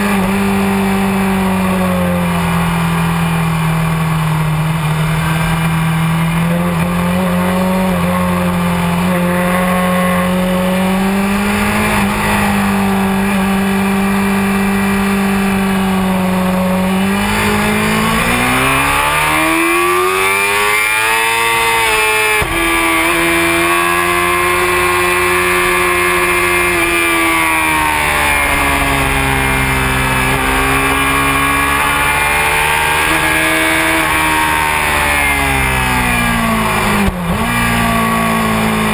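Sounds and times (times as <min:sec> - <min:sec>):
motorcycle engine running hard: 0:00.0 - 0:38.9.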